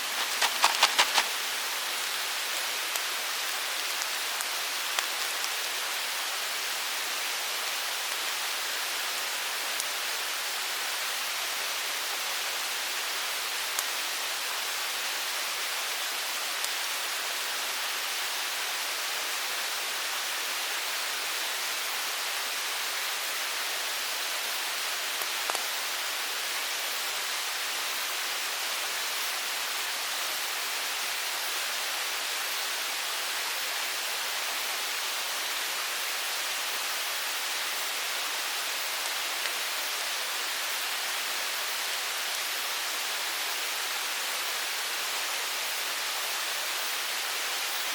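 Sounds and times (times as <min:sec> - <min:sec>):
mountain stream rushing: 0:00.0 - 0:15.5.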